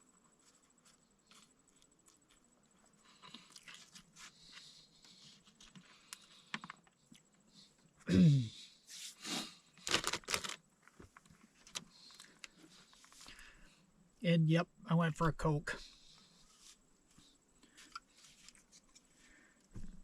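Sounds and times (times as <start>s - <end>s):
food packaging rustling: 9.8s - 13.3s.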